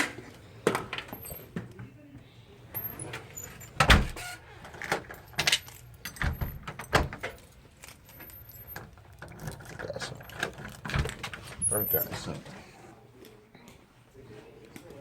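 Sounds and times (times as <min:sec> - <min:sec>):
jingling: 0:08.0 - 0:09.2.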